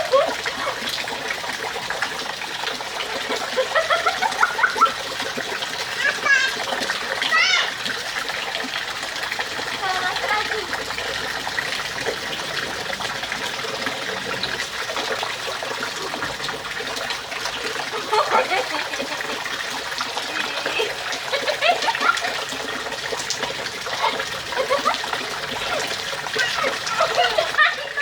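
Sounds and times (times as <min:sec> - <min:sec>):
rainwater pouring and splashing: 0:00.0 - 0:28.0
child calling out: 0:06.0 - 0:07.8.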